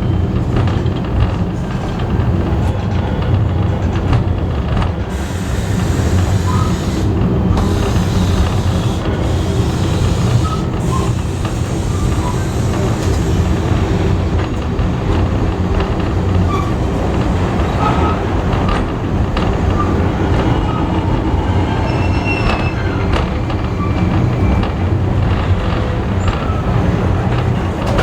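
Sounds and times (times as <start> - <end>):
rumble of wheels on rails: 0.0 - 28.0
high wheel squeals: 5.0 - 14.2, 20.7 - 24.7.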